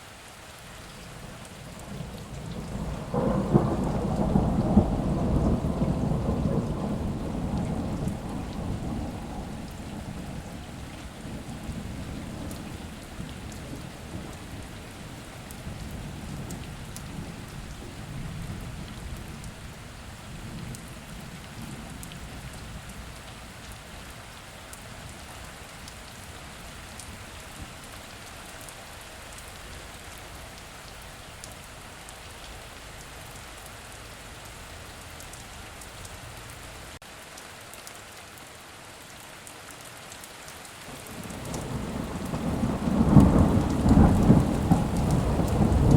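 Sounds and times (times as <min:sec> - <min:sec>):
heavy rain falling: 0:00.0 - 0:45.9
low thunder rumble: 0:01.2 - 0:23.3, 0:41.1 - 0:45.9.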